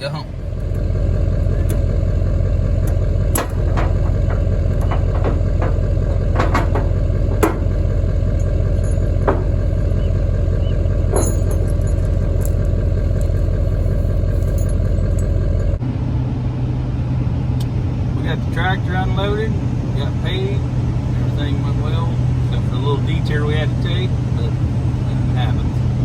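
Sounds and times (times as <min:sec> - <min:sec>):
engine idling: 0:00.0 - 0:26.0
metallic clicks and clanks: 0:02.8 - 0:10.0, 0:10.9 - 0:15.8.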